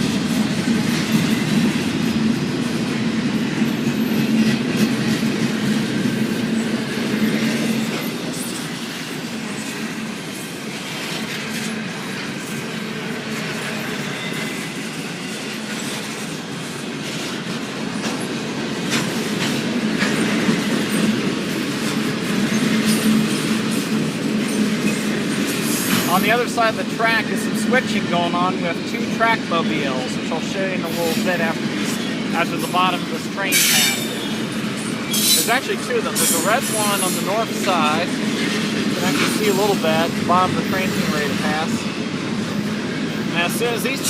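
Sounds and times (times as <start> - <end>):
train wheels rumbling on rails: 0.0 - 44.0
wheels clicking over rail joints: 30.9 - 42.8.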